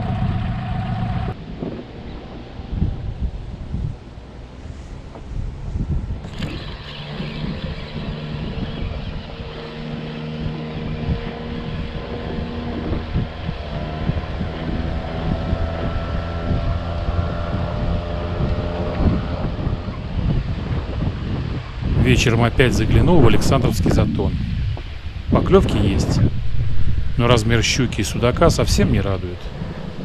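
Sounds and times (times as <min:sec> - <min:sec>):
outboard motor running: 0:00.0 - 0:02.5, 0:06.2 - 0:22.0
wind on microphone: 0:00.0 - 0:30.0.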